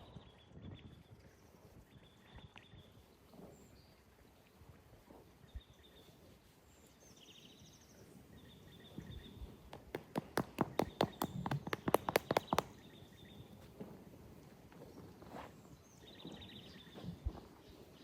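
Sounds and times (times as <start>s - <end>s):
birds chirping: 7.0s - 13.6s
horse hooves on hard ground: 9.4s - 17.9s.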